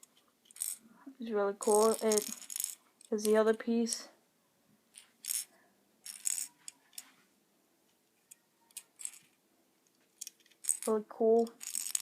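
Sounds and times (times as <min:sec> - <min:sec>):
plastic toy bricks clicking: 0:00.0 - 0:00.8, 0:01.6 - 0:04.0, 0:04.9 - 0:07.1, 0:08.2 - 0:12.0.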